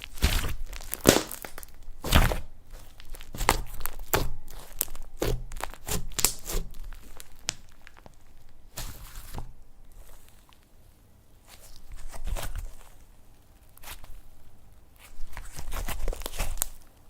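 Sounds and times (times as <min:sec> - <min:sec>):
slime squishing and popping: 0:00.0 - 0:09.6.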